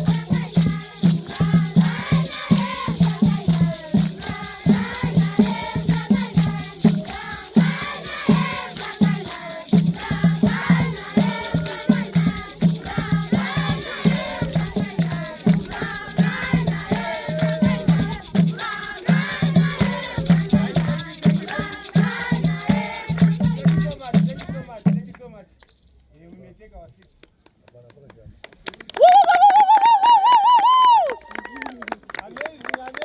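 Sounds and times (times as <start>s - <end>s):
voices singing together: 0.0s - 24.8s
rattles shaking: 0.0s - 24.9s
steady drum beat: 0.0s - 25.1s.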